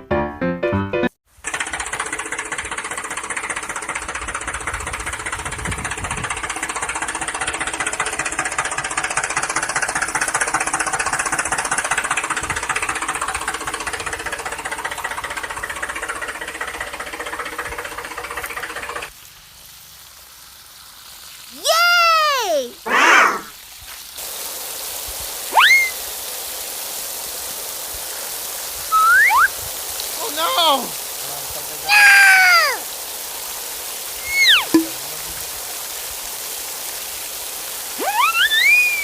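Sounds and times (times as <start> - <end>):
toy motor and gears whirring: 38.0 - 39.0.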